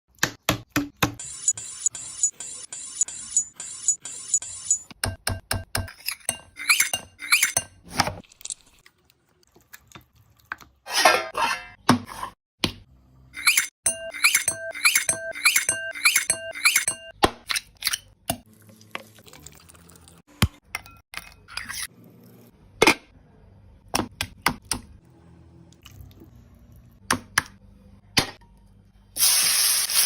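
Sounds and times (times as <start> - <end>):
utensils and dishes clinking: 5.8 - 7.8, 13.4 - 18.1.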